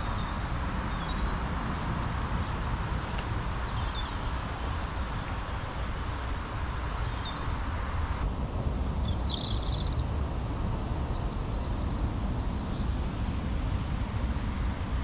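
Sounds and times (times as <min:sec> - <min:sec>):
low outdoor rumble: 0:00.0 - 0:15.0
songbird trilling and chirping: 0:03.0 - 0:07.8.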